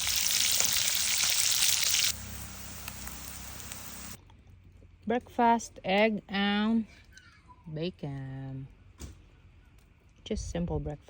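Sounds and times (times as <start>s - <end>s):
pork belly sizzling in a pan: 0.0s - 4.2s.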